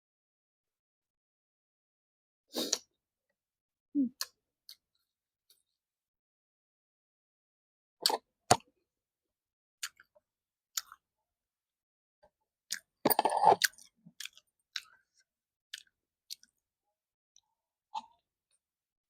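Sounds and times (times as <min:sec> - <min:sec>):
person chewing food: 0:09.8 - 0:11.0, 0:12.7 - 0:16.6.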